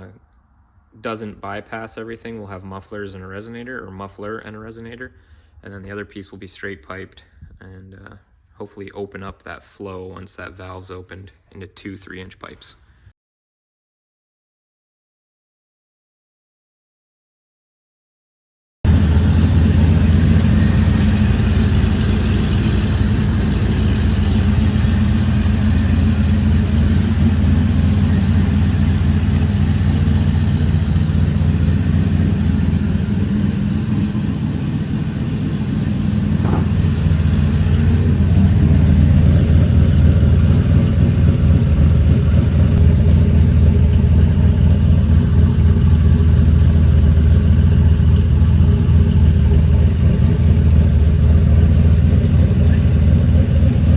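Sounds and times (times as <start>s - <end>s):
engine exhaust deep note: 18.9s - 53.9s.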